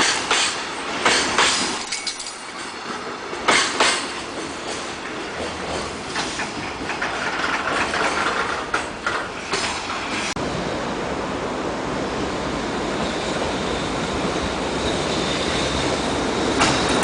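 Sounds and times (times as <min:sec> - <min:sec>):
wheels clacking over rail joints: 0:00.0 - 0:10.4
train rolling rumble: 0:00.0 - 0:17.0.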